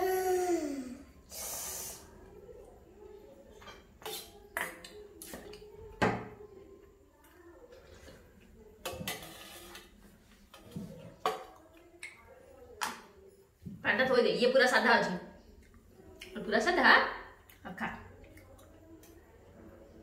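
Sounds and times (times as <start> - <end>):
short breathy hiss: 1.3 - 2.0.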